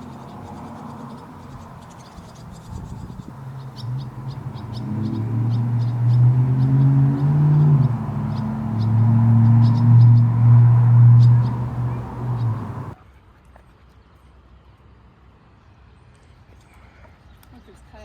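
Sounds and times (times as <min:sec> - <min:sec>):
crickets chirping: 0:00.0 - 0:13.0
low engine-like drone: 0:02.9 - 0:13.0.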